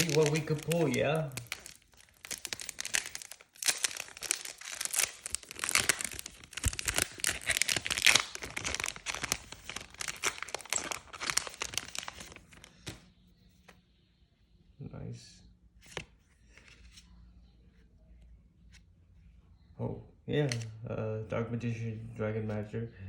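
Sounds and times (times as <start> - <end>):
foil wrapper crinkling and tearing: 0.0 - 13.0.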